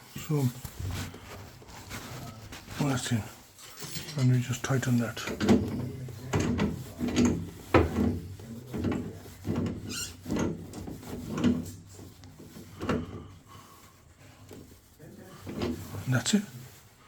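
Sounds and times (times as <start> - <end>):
part scraping and clunking: 3.6 - 14.8, 15.4 - 16.1.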